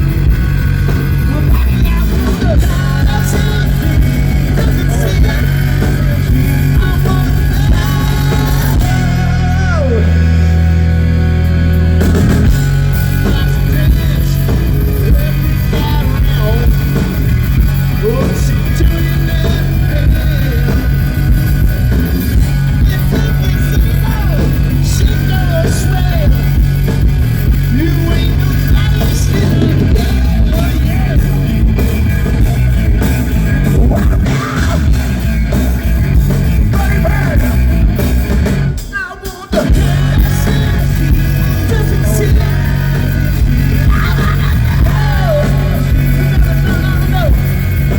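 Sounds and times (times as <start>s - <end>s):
live hard rock band: 0.0s - 47.9s
person singing or shouting: 1.2s - 10.6s, 13.2s - 17.0s, 22.5s - 26.5s, 27.7s - 31.6s, 33.6s - 35.2s, 36.6s - 37.8s, 38.8s - 47.6s.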